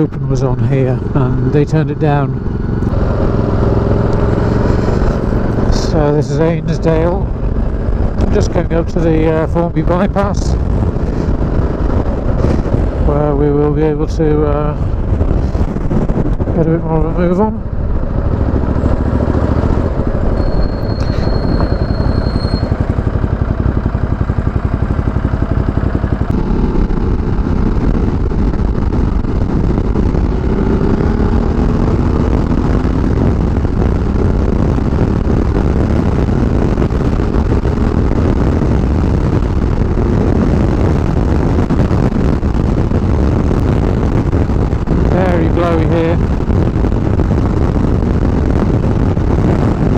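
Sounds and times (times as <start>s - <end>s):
wind rush on microphone: 0.0s - 49.9s
motorcycle engine under load: 17.2s - 41.6s.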